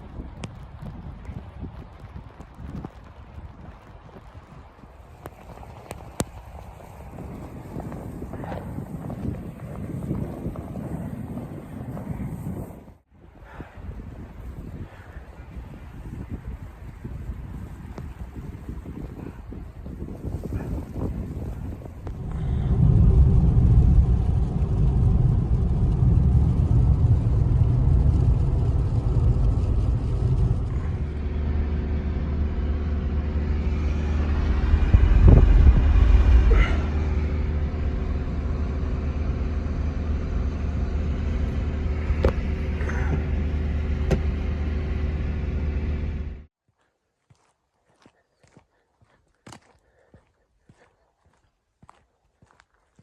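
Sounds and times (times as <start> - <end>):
motor vehicle rumbling: 0.0 - 46.5.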